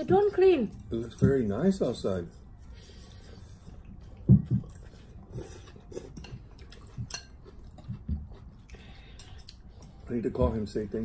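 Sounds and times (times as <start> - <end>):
spoons and chopsticks clinking on bowls: 6.0 - 7.5.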